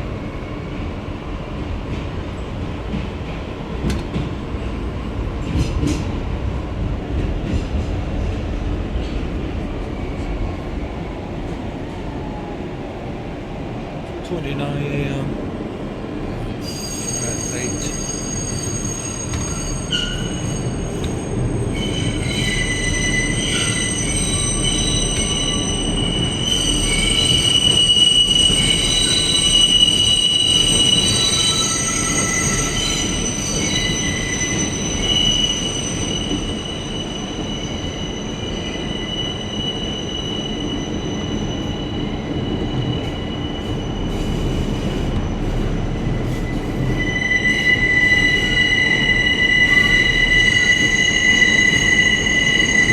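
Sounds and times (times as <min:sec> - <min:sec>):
subway wheels rumbling on rails: 0:00.0 - 0:52.9
high-pitched wheel squeal: 0:16.6 - 0:44.6, 0:46.3 - 0:52.9.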